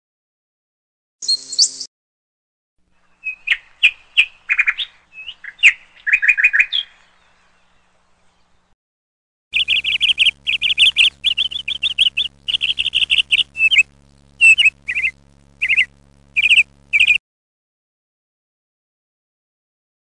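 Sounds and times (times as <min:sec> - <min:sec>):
sparrow chirping: 0:01.2 - 0:01.9, 0:03.2 - 0:07.0, 0:09.6 - 0:17.2
faint steady hum: 0:09.6 - 0:17.2.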